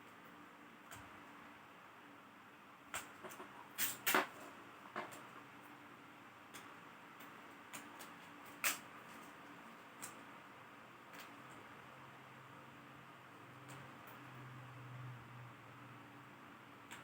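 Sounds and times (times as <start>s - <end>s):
clicks of laptop parts and tools: 2.9s - 5.3s, 6.5s - 9.4s, 10.0s - 10.2s, 11.1s - 11.6s.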